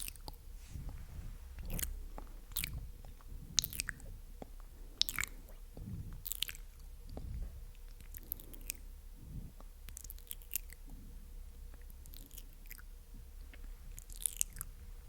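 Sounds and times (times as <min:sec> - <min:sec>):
wet mouth clicks and smacks: 0:00.0 - 0:00.4, 0:01.6 - 0:08.8, 0:09.6 - 0:10.9, 0:11.7 - 0:14.7.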